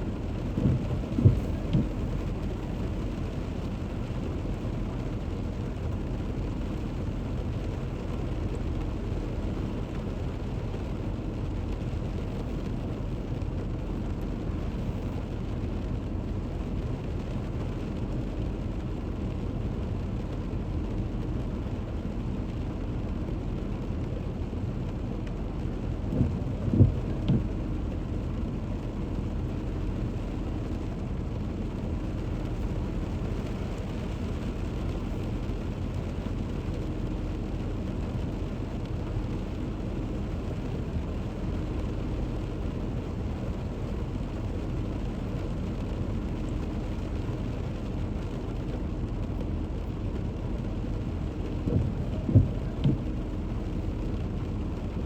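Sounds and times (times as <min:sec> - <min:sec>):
car driving on wet road: 0:00.0 - 0:55.0
rain hiss: 0:00.0 - 0:55.0
short thumps: 0:00.5 - 0:02.2, 0:26.2 - 0:27.5, 0:51.6 - 0:53.2.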